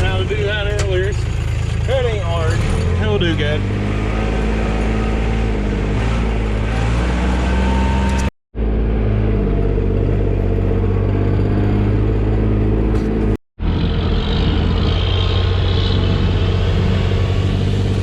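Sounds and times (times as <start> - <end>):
truck engine running: 0.0 - 7.0, 8.6 - 18.0.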